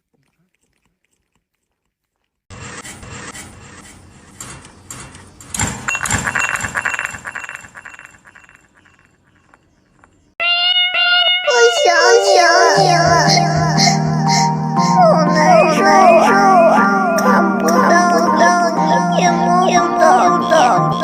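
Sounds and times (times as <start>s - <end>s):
rapid clinking and rattling: 4.3s - 10.3s.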